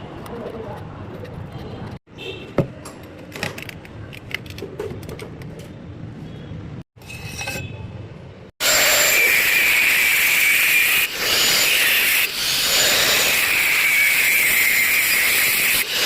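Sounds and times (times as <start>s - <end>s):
power tool hissing and whining: 8.6s - 16.0s.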